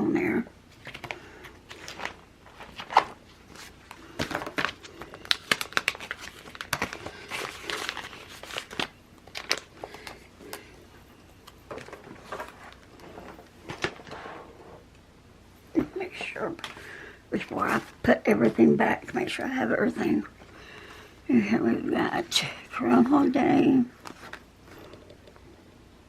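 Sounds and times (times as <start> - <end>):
paper crinkling and rustling: 0.7 - 10.7, 11.4 - 14.5, 23.0 - 24.9.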